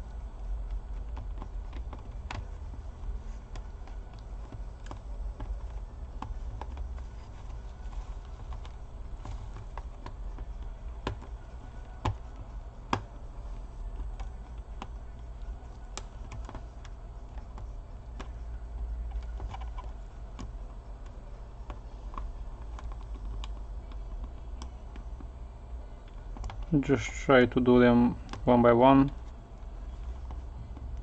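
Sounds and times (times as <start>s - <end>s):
steady low hum: 0.0s - 31.0s
plastic clicks from ribbon cables: 0.6s - 25.3s.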